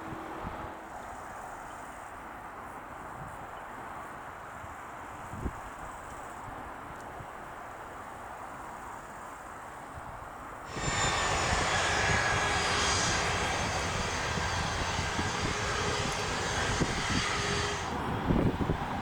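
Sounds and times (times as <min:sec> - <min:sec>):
jet engines running: 0:10.7 - 0:19.0.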